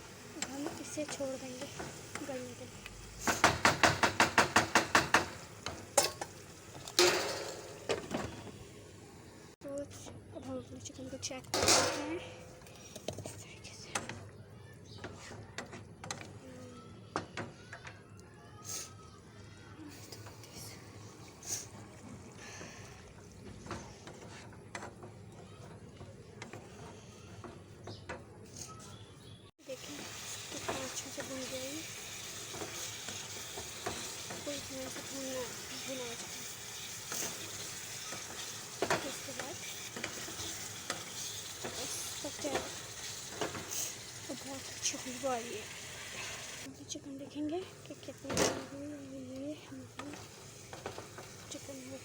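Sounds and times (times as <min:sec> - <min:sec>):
pot clanks: 0:03.2 - 0:08.3.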